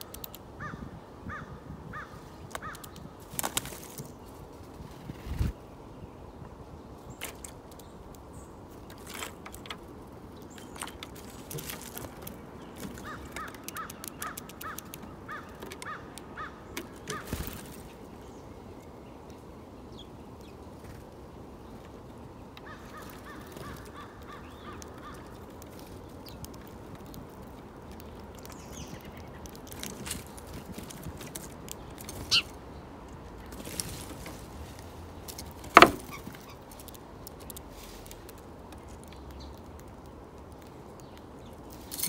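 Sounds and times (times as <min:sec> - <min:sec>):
bird chirps and clicks: 0:00.0 - 0:00.7, 0:02.4 - 0:04.4, 0:06.4 - 0:42.0
bird short repeated calls: 0:32.3 - 0:32.5.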